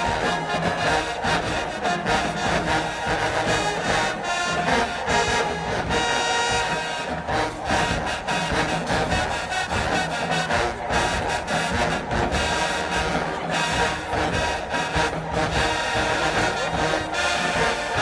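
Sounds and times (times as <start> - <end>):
brass section playing: 0.0 - 18.0
marching drumline beat: 0.0 - 18.0.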